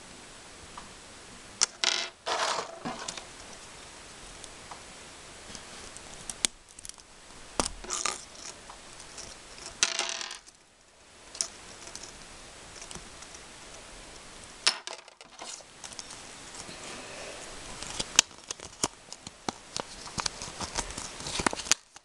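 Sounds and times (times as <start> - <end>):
packaging rustling: 2.2 - 3.4, 17.8 - 22.0.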